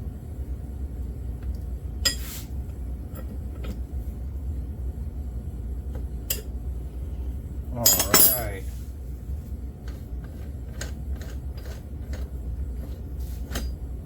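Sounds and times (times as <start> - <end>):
steady low hum: 0.0 - 14.0
metal tools clinking: 7.8 - 8.6.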